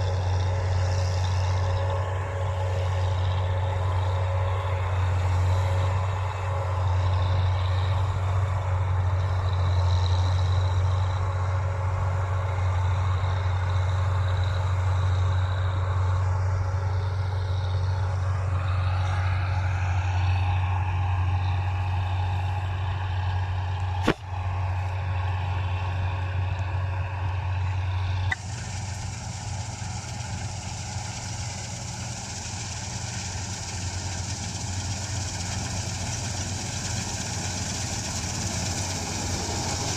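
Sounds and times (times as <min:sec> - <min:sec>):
hiss: 0:00.0 - 0:16.3, 0:28.1 - 0:39.9
combine harvester engine humming: 0:00.0 - 0:39.9.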